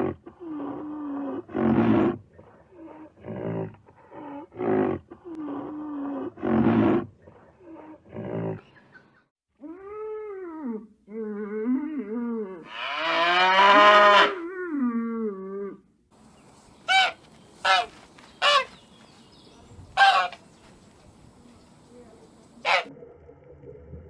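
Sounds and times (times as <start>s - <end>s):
animal growls: 0.0s - 8.7s
animal pitched calls: 16.9s - 18.7s, 22.6s - 22.9s.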